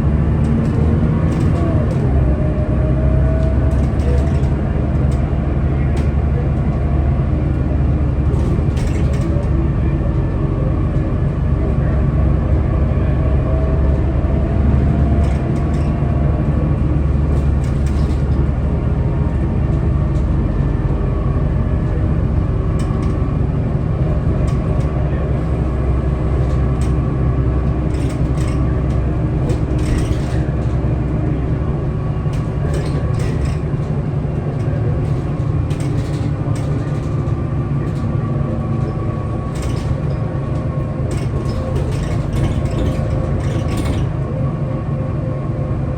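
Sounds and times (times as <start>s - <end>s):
bus diesel engine droning: 0.0s - 45.9s
short rattles and clicks: 3.3s - 5.3s, 8.3s - 9.6s, 17.1s - 20.9s, 27.6s - 31.2s, 32.2s - 44.3s.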